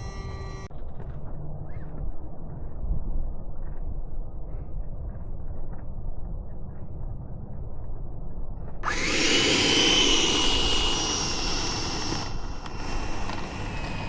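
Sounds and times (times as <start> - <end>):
wind rumble on microphone: 0.8 - 14.0
model jet fan whine and hiss: 8.8 - 14.0.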